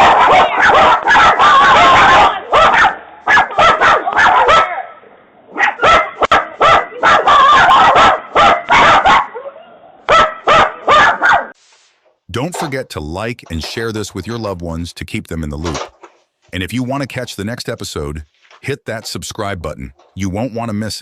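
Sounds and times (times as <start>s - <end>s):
dog barking: 0.0s - 11.6s.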